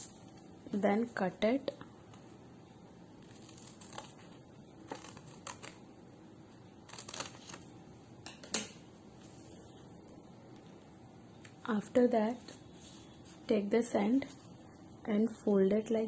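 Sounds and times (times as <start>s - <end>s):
paper crinkling: 3.2s - 5.8s, 6.8s - 7.7s
scissors snipping paper: 3.3s - 4.2s, 4.9s - 5.8s.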